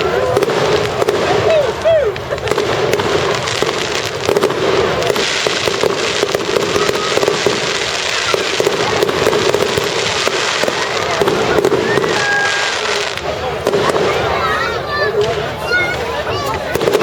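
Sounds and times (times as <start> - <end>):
fireworks crackling and banging: 0.0 - 17.0.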